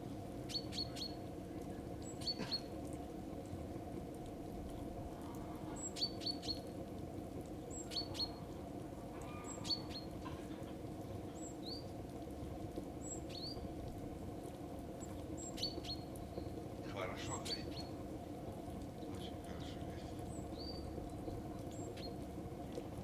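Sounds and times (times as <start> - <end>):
songbird chirping: 7.6 - 8.4, 9.2 - 10.2, 15.0 - 22.2.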